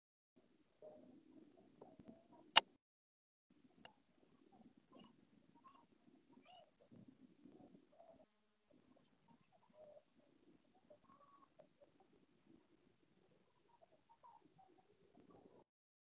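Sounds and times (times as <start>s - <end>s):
lower bird calls: 4.4s - 8.2s.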